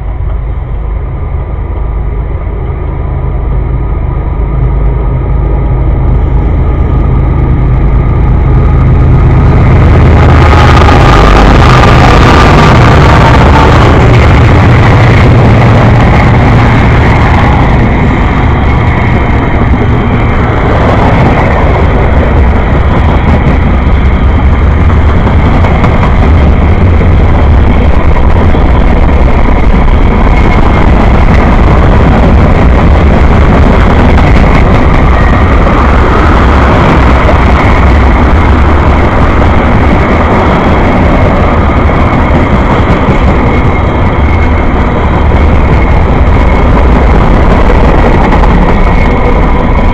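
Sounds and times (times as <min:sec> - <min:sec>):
train wheels running on rails: 0:00.0 - 0:49.9.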